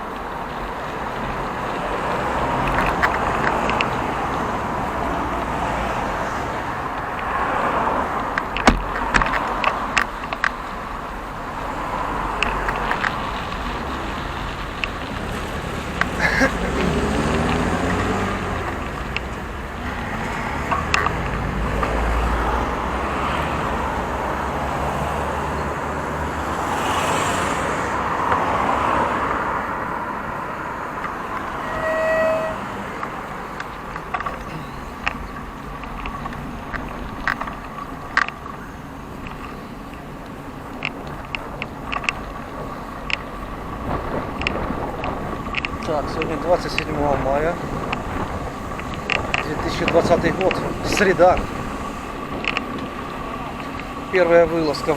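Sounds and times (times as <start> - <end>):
passing cars: 0.0 - 54.9
car engine passing by: 11.4 - 40.0
car horn toot: 31.2 - 35.1.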